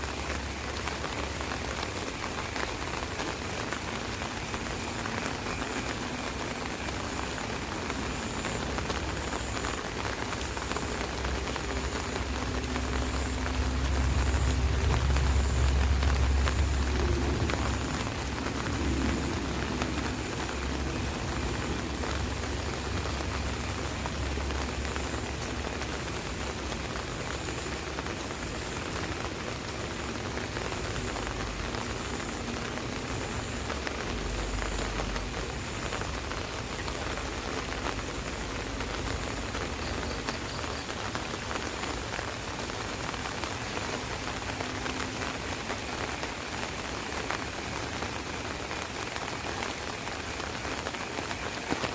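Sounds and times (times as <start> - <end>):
rain pattering on umbrella: 0.0 - 51.9
low rumble: 10.9 - 26.9.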